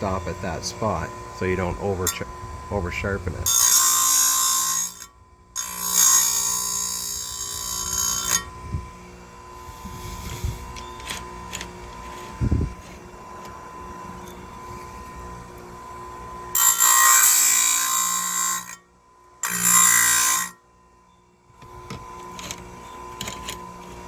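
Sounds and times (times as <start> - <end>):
grinding wheel on chain: 3.5 - 8.5, 16.5 - 18.8, 19.4 - 20.6.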